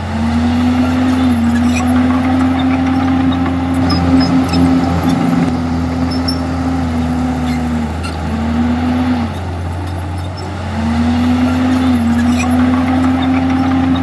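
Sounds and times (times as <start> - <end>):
bulldozer diesel engine under load: 0.0 - 14.0.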